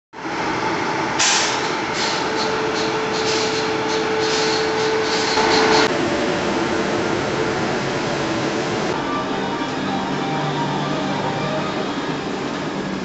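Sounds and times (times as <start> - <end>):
locomotive machinery hum: 0.2 - 13.0
air hissing in spurts: 1.2 - 5.8.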